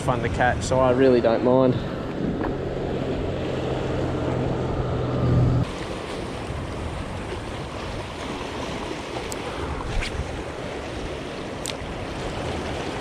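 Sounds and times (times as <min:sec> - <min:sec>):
wind buffeting microphone: 0:00.0 - 0:13.0
surf washing against rocks: 0:05.6 - 0:13.0.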